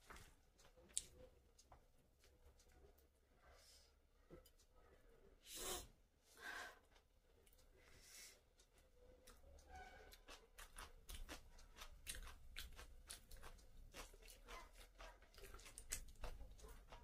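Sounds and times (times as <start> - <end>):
person chewing food: 8.4 - 17.0.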